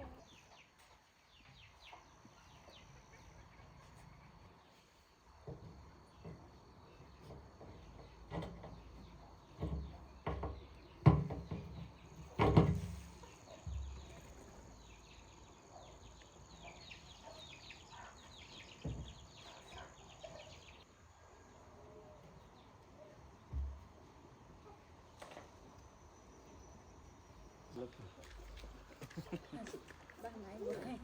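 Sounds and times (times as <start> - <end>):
birds chirping: 13.1 - 20.9, 22.1 - 31.0.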